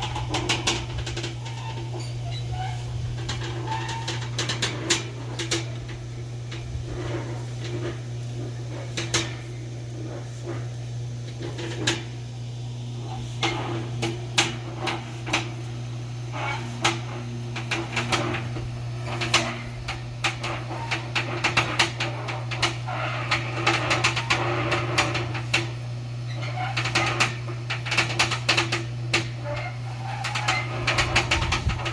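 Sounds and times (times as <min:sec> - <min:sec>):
steady low hum: 0:00.0 - 0:23.6.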